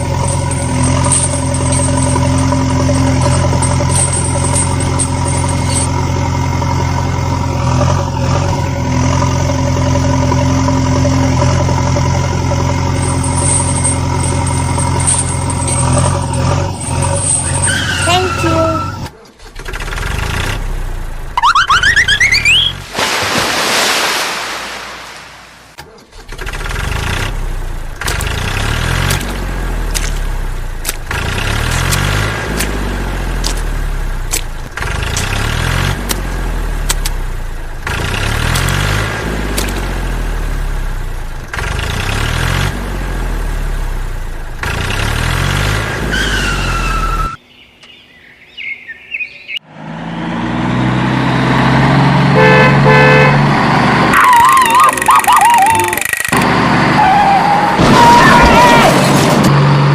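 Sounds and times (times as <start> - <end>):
vehicle sound effect: 0.0 - 23.0, 49.6 - 59.9
loud honking horn: 17.2 - 19.1, 52.2 - 55.1.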